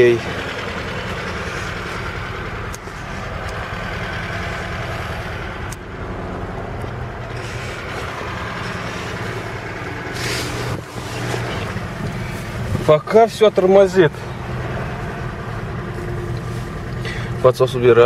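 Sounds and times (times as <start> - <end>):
petrol engine running: 0.0 - 18.0.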